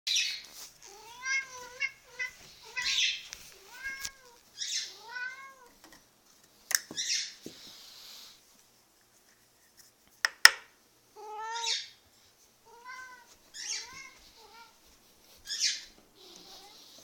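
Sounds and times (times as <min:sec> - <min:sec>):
cat hissing huffs: 0:16.2 - 0:17.0.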